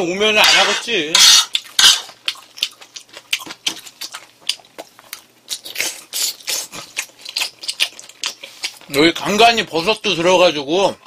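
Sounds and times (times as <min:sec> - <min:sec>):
person chewing with wet smacking: 0:01.5 - 0:10.1.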